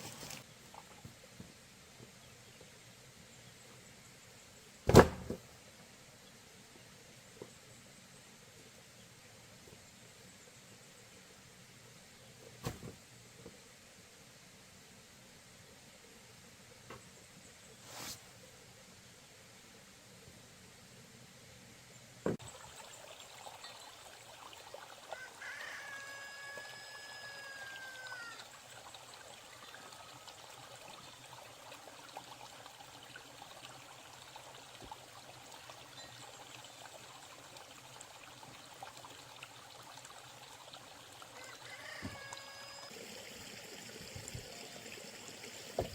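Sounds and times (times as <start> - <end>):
running water trickling: 0.0 - 1.2, 22.4 - 45.9
rooster crowing: 25.2 - 28.4, 41.4 - 42.9.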